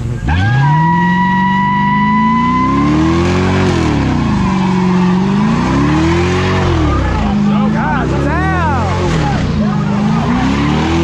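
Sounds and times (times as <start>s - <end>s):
tire squeal: 0.0s - 7.7s
car engine revving: 0.0s - 11.0s.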